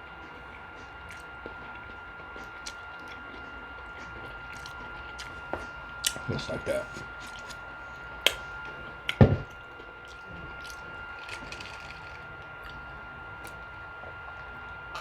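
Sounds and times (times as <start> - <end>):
soft wet chewing: 0.0 - 15.0.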